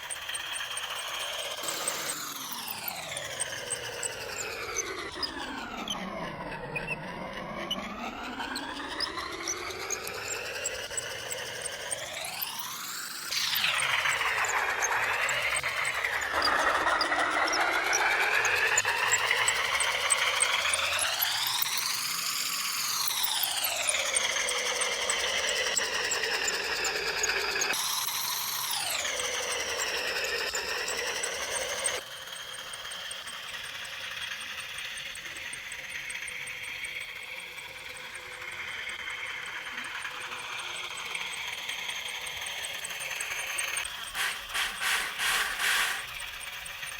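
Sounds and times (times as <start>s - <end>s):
small electric motor whining: 0.0s - 22.7s, 37.7s - 46.9s
electric power tool whining: 43.9s - 46.2s.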